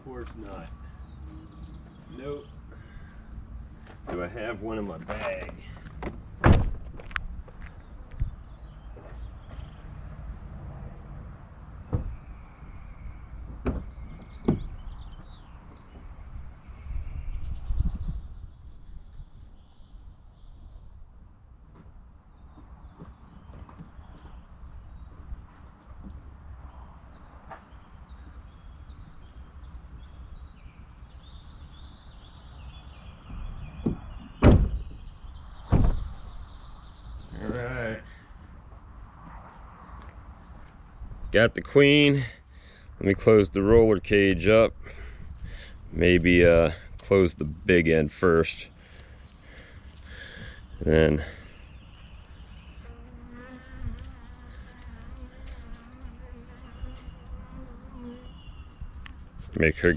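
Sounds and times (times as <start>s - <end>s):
thuds: 5.9s - 7.2s, 11.9s - 12.2s, 13.5s - 14.8s, 33.3s - 35.1s, 35.7s - 36.3s
vehicle door shutting: 6.0s - 7.1s, 33.8s - 35.1s, 35.7s - 36.2s.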